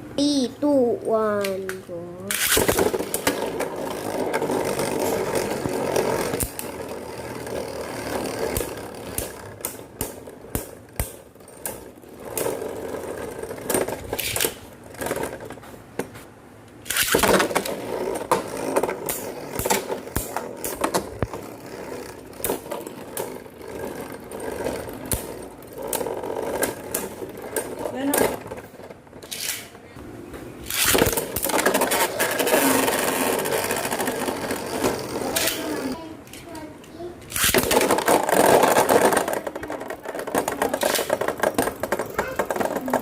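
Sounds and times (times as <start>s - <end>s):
spinning tops whirring and scraping: 1.5s - 29.8s, 30.6s - 43.0s
spinning tops clacking together: 2.3s - 15.5s, 16.8s - 28.6s, 30.6s - 36.4s, 37.2s - 43.0s.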